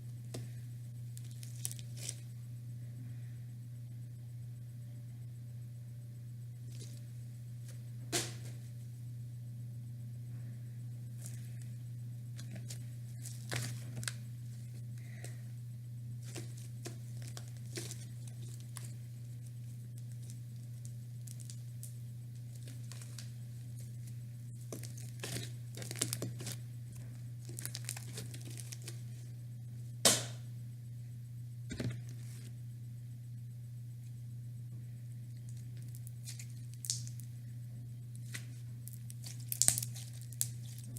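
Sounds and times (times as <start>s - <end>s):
steady low hum: 0.0s - 40.9s
slime crackling and popping: 1.2s - 2.2s, 12.4s - 14.2s, 16.2s - 29.0s, 35.4s - 37.3s, 38.1s - 40.9s.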